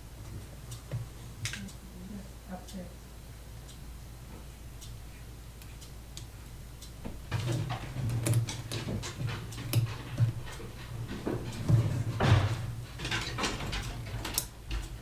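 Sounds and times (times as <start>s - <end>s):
small tools clicking and tapping: 7.3s - 15.0s.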